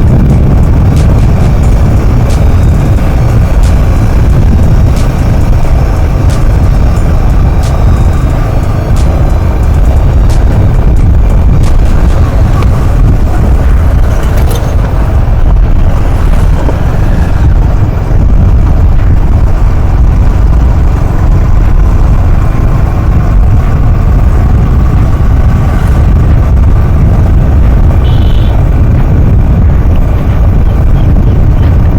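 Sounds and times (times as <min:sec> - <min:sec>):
motorcycle engine: 0:00.0 - 0:31.9
road noise: 0:00.0 - 0:31.9
wind buffeting microphone: 0:00.0 - 0:31.9.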